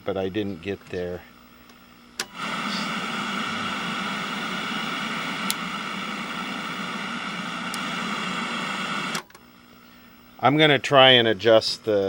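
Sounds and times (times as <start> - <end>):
electronic buzz with hiss: 0.0 - 12.0.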